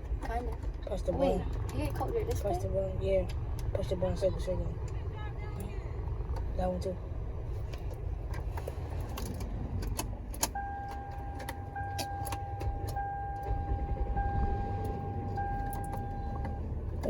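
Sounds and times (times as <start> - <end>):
car cabin rumble: 0.0 - 17.0
car warning chime beeping: 10.4 - 17.0.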